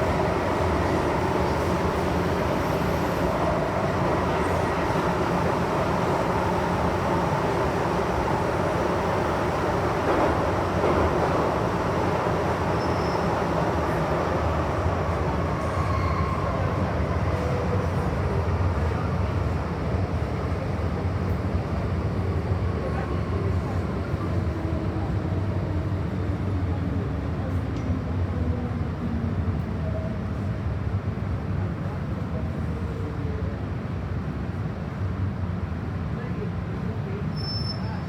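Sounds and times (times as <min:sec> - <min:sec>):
train wheels rumbling on rails: 0:00.0 - 0:18.4.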